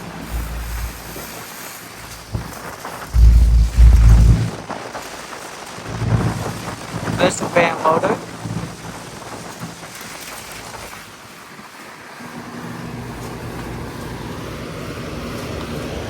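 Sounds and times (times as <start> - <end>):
low motor hum: 0.0 - 1.4, 2.1 - 4.6
air conditioner fan rushing: 0.0 - 4.6, 12.2 - 16.0.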